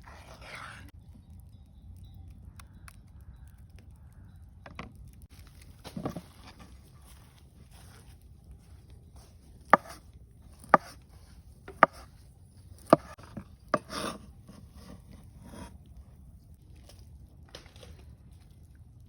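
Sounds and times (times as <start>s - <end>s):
soft handling noises: 5.0s - 13.7s
knife chopping on wooden board: 9.7s - 10.0s, 10.6s - 11.0s, 11.7s - 12.1s, 12.8s - 14.2s.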